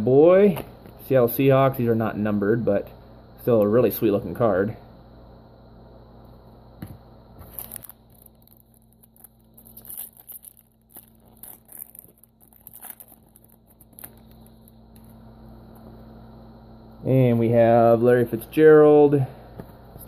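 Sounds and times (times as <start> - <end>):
low mains hum: 0.0 - 20.0
foil wrapper tearing and crinkling: 7.4 - 15.1.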